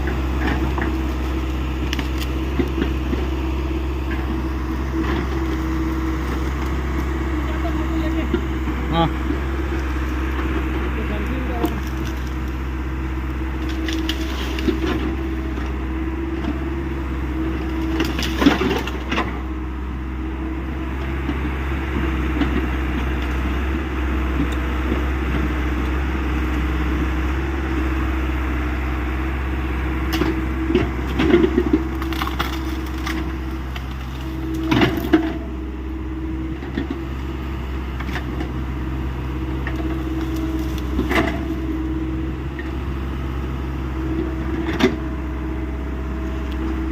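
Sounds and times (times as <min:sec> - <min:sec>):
wood cracking and crunching: 0:00.0 - 0:15.8, 0:17.4 - 0:19.4, 0:30.0 - 0:35.6, 0:38.0 - 0:42.8
excavator diesel engine running: 0:00.0 - 0:46.9.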